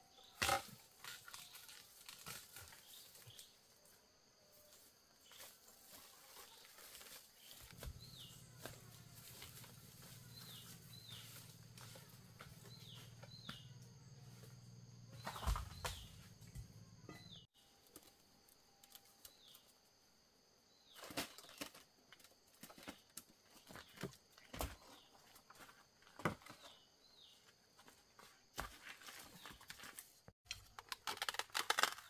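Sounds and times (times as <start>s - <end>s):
faint bird chirps: 7.4s - 17.8s.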